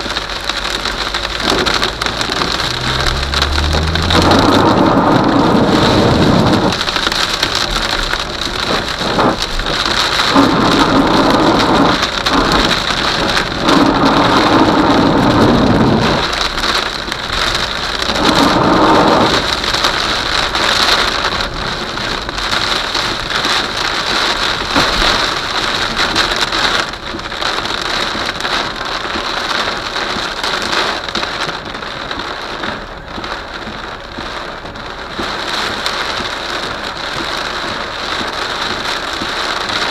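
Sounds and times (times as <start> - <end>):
thunder rumbling: 0.0 - 33.7
heavy rain: 0.0 - 39.9.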